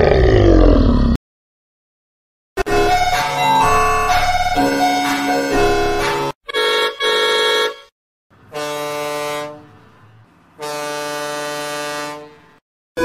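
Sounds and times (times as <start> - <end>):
vehicle horn honks: 5.6 - 7.9, 8.5 - 9.7, 10.6 - 12.4
deep horn blasts: 10.6 - 12.4.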